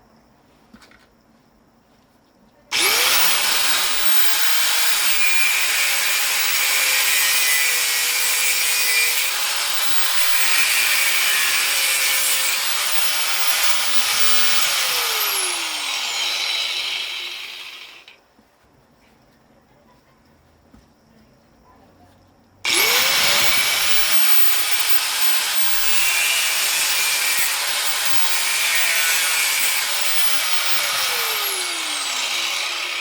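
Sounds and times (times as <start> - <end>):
angle grinder grinding metal: 2.7 - 18.2, 22.7 - 33.0
grinder winding down: 2.7 - 18.2, 22.7 - 33.0.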